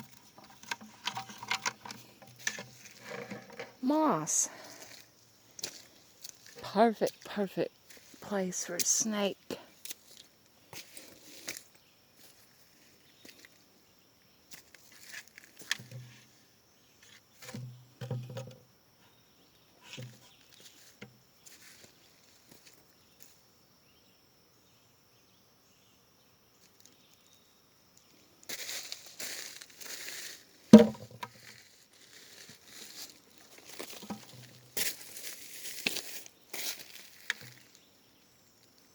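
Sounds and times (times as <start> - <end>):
rustling and crunching leaf litter: 28.5 - 30.6, 31.3 - 37.8
dull thuds: 30.8 - 31.3
sharp knock: 30.8 - 31.3.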